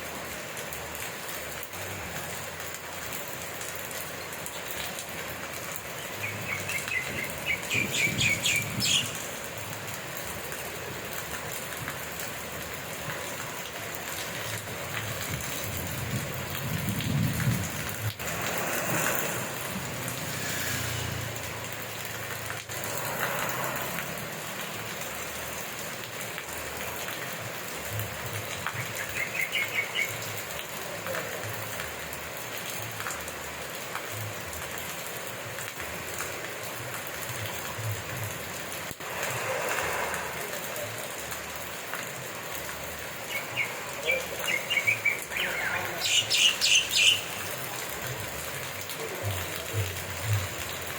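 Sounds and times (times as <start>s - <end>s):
steady rain falling: 0.0s - 50.9s
bird chirping: 6.2s - 9.2s, 43.3s - 47.5s.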